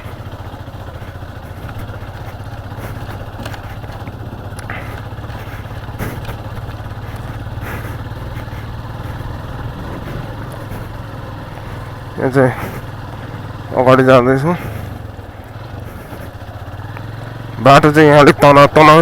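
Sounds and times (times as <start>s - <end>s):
sharp knocks and rattles: 0.0s - 12.0s
motorcycle engine running: 0.0s - 19.0s.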